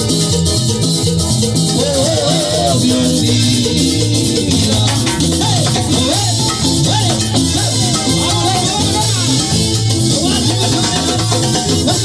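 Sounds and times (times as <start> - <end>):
latin dance band playing: 0.0 - 12.0.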